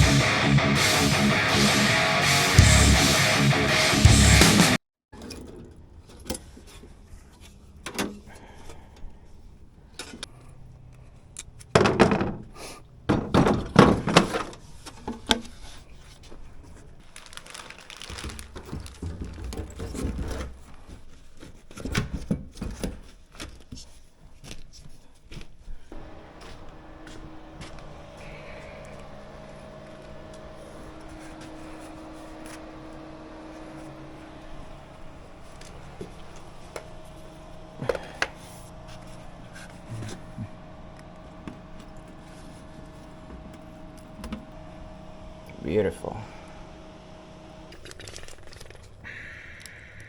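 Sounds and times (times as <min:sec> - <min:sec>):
steady low hum: 0:25.9 - 0:50.0.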